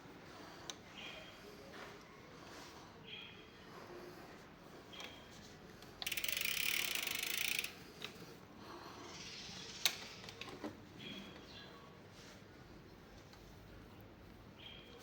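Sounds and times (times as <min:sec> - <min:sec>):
bicycle freewheel ratchet clicking: 0:06.0 - 0:08.2.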